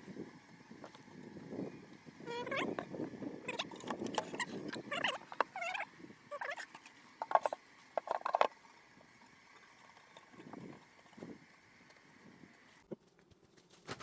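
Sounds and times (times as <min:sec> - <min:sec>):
wood squeaking on wood: 0:03.5 - 0:08.6.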